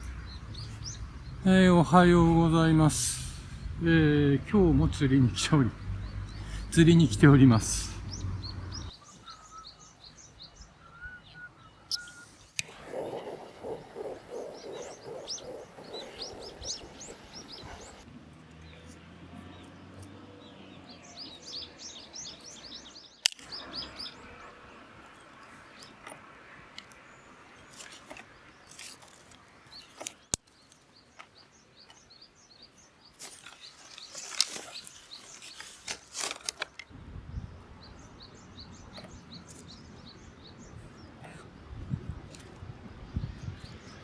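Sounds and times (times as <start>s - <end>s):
low rumbling: 0.0s - 8.9s
small birds chirping: 0.0s - 44.0s.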